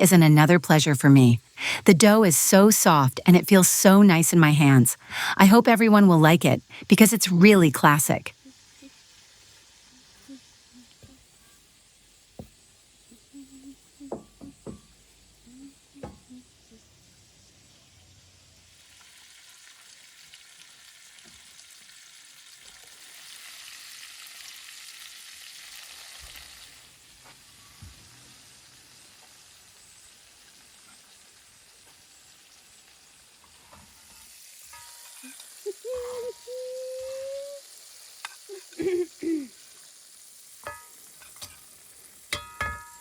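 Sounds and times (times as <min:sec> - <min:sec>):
fish frying in a pan: 0:08.3 - 0:11.0, 0:18.1 - 0:35.7, 0:37.4 - 0:43.0.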